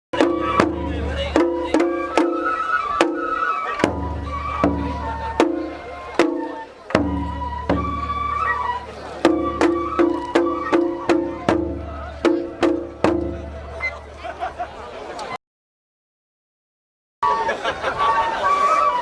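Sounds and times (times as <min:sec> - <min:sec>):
thin flute melody: 0:00.2 - 0:14.1, 0:17.2 - 0:19.0
deep big drum booming: 0:09.2 - 0:13.8.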